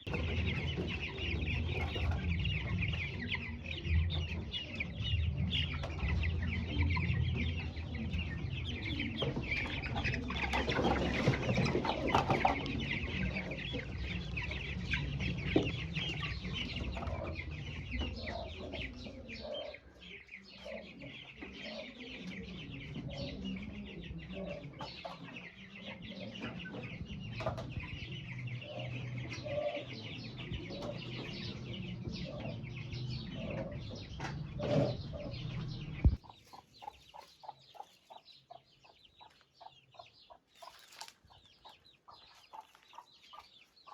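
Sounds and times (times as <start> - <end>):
chicks cheeping: 0.0 - 43.9
low rumble: 0.1 - 19.4.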